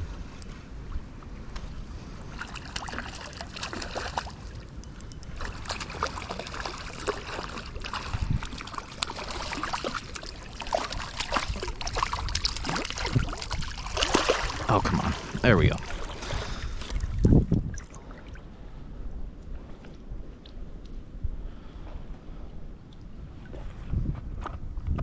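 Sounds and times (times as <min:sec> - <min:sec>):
low wind rumble: 0:00.0 - 0:25.0
river water splashing: 0:02.1 - 0:18.5.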